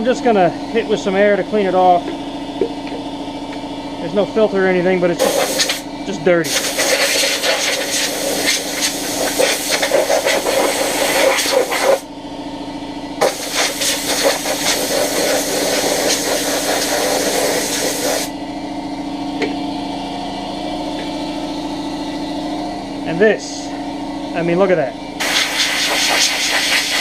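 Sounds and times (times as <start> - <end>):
steady machine hum: 0.0 - 27.0
compressed air blow gun hissing: 5.2 - 5.8, 6.5 - 12.0, 13.2 - 18.3, 25.2 - 27.0.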